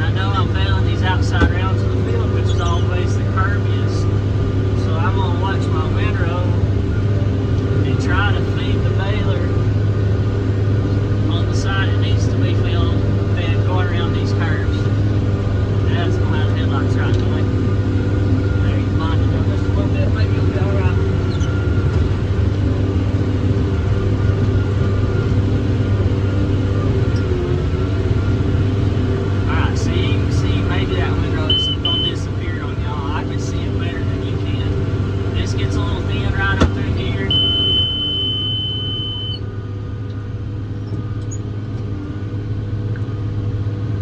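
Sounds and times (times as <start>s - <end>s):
tractor diesel engine humming: 0.0s - 44.0s
high-pitched tone: 31.4s - 32.4s, 35.8s - 39.5s.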